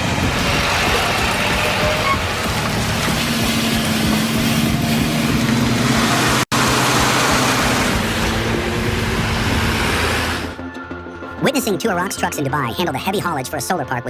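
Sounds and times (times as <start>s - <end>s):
heavy truck engine rumbling: 0.0s - 10.6s.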